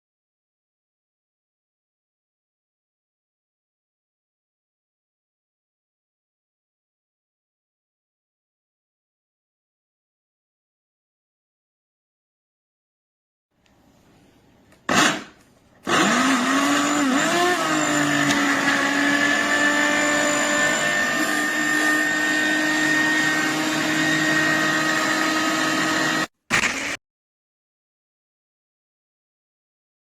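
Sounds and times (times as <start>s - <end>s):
blender motor running: 14.9s - 27.0s.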